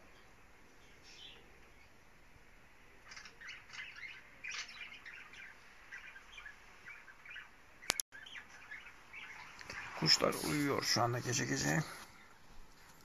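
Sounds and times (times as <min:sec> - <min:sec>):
birds chirping: 0:00.0 - 0:12.4.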